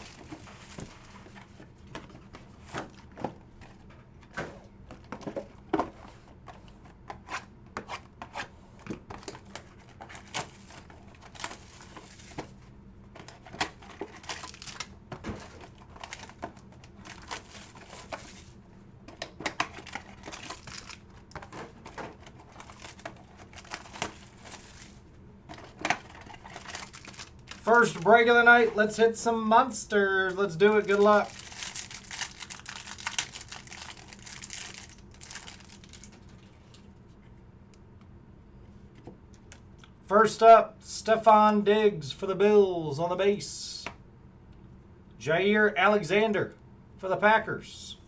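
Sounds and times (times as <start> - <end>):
wrappers crinkling and tearing: 9.3 - 12.6, 13.2 - 18.6, 19.7 - 25.0, 25.6 - 28.0, 30.7 - 36.9.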